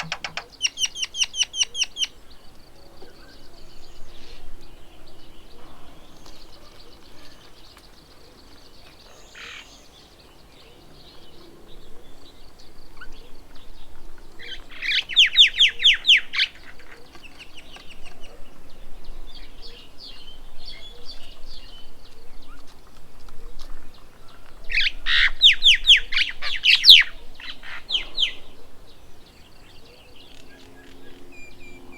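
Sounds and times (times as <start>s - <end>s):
birds chirping and calling: 0.0s - 2.4s.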